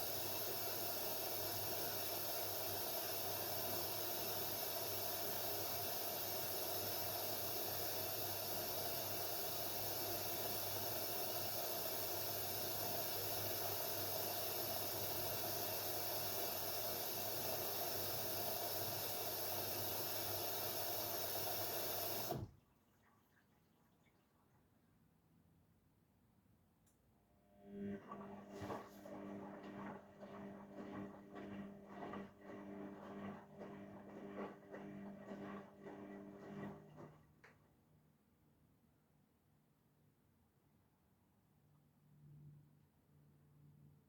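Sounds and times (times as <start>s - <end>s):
water running into washing machine: 0.0s - 22.6s, 27.9s - 37.3s.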